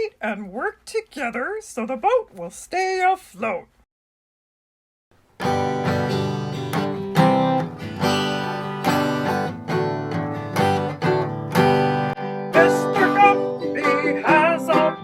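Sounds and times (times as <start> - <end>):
acoustic guitar strumming chords: 5.3 - 15.0.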